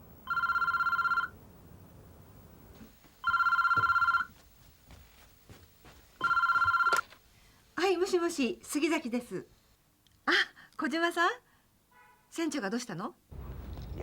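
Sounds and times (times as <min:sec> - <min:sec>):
telephone ringing: 0:00.2 - 0:01.4, 0:03.2 - 0:04.4, 0:06.2 - 0:07.2.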